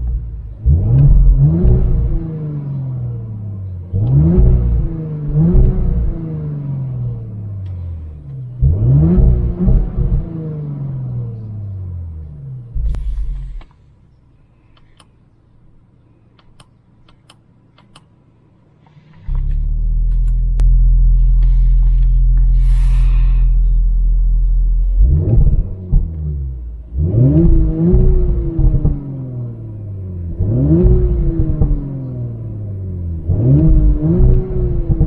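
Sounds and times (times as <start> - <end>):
car engine revving and idling: 0.0 - 14.4, 18.6 - 35.0
faint clicks: 16.3 - 18.2.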